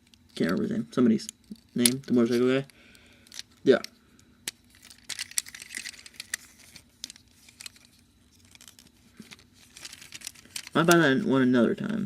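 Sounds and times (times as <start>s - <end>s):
plastic toy parts clicking: 3.2s - 11.0s
plastic rustling: 4.5s - 11.1s.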